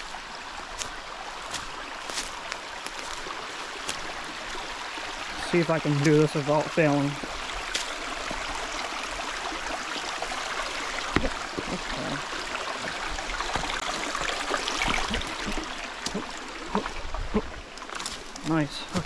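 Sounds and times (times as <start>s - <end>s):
creek water running over rocks: 0.0s - 19.0s
footsteps knocking on stones: 0.8s - 4.6s, 7.2s - 8.4s, 11.1s - 11.8s, 12.9s - 15.3s.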